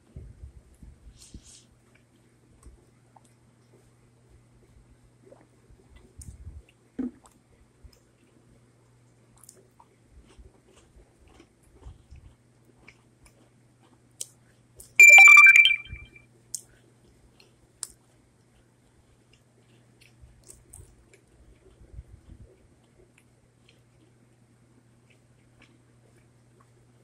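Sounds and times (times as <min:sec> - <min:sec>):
chewing cookies: 0:01.7 - 0:15.0, 0:16.4 - 0:27.0
high-pitched tone: 0:15.0 - 0:16.2.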